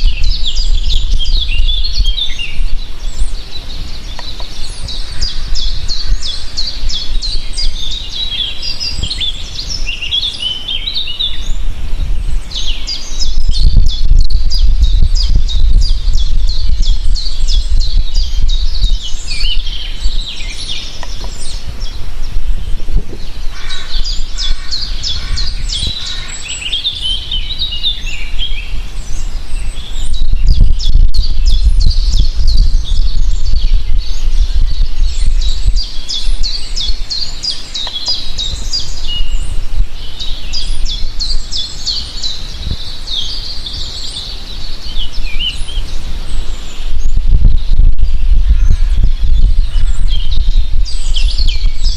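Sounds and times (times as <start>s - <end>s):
songbirds chirping and trilling: 0.0s - 51.9s
low rumble: 11.5s - 26.3s, 30.0s - 36.9s, 46.8s - 51.9s.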